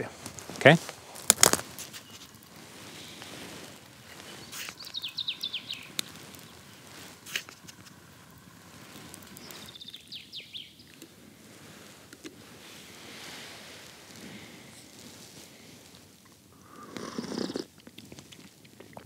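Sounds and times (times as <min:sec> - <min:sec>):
outdoor background noise: 0:00.0 - 0:19.0
small bird singing: 0:01.8 - 0:07.9, 0:08.9 - 0:11.0.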